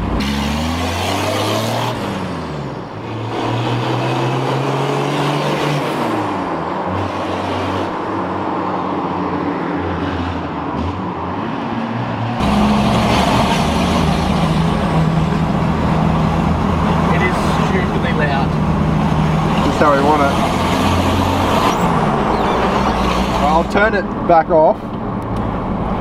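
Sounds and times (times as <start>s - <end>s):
diesel engine under way: 0.0s - 26.0s
loud deep exhaust: 10.2s - 26.0s.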